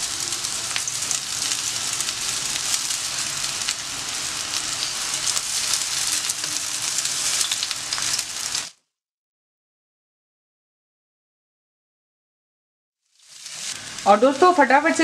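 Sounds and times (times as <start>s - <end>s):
food sizzling in hot oil: 0.0s - 8.8s, 13.0s - 15.0s.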